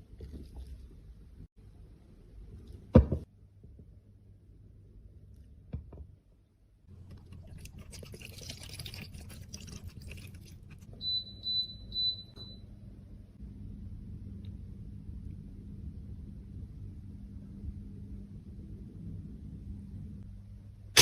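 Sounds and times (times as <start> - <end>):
steady low hum: 6.7 - 21.0.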